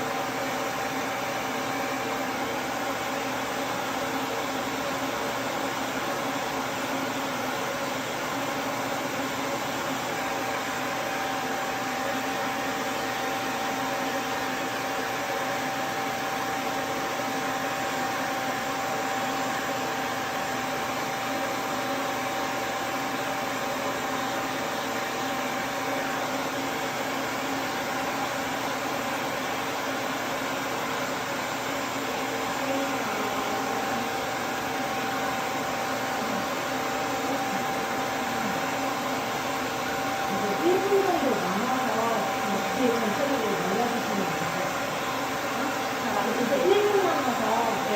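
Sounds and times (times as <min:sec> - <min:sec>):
dryer fan whining: 0:00.0 - 0:47.9.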